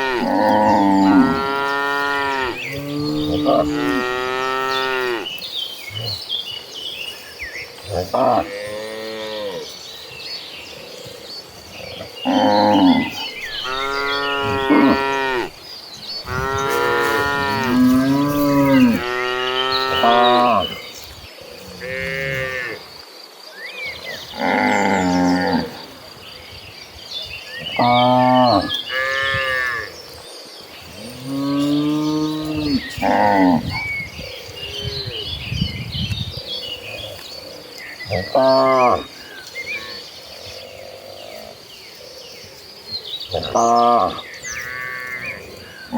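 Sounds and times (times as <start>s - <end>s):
cows mooing: 0.0s - 5.3s, 12.2s - 15.6s, 16.2s - 20.8s, 31.0s - 33.8s.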